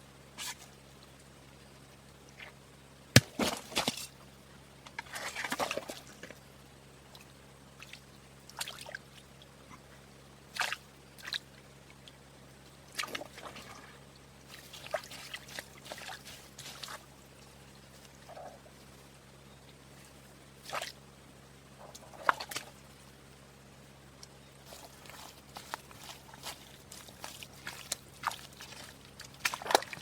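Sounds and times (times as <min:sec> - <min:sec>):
handling noise with sloshing: 0:10.5 - 0:12.0, 0:12.9 - 0:19.2, 0:19.8 - 0:21.0, 0:21.8 - 0:23.0, 0:24.6 - 0:30.0.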